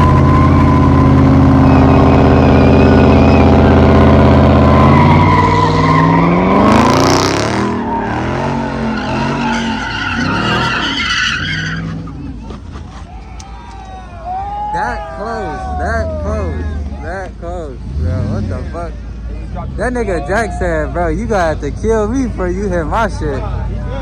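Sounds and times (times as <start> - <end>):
car engine revving: 0.0 - 13.0, 15.3 - 24.0
tyres squealing: 0.0 - 17.1.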